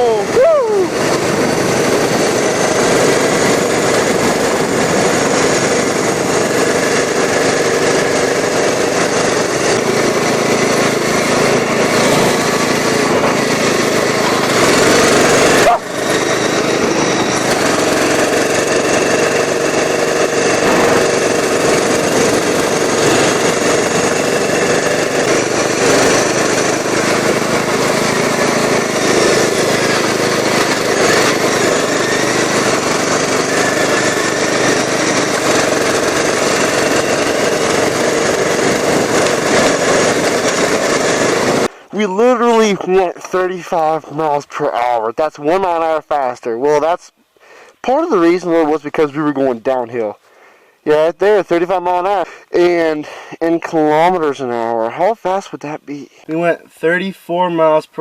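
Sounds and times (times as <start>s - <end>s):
lawn mower engine running fast: 0.0s - 56.6s.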